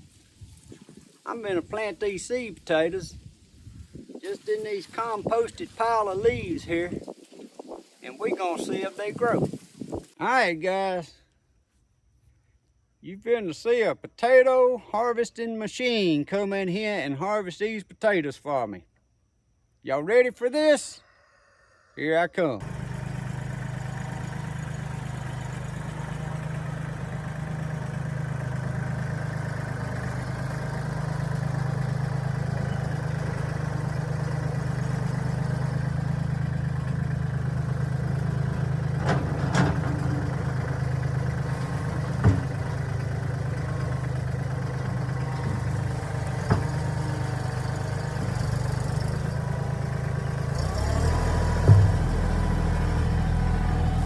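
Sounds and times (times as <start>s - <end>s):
tractor diesel engine running: 1.3s - 3.2s, 4.5s - 7.0s, 22.6s - 54.0s
thump: 42.2s - 42.6s, 51.6s - 52.2s
sharp knocks: 51.7s - 52.2s.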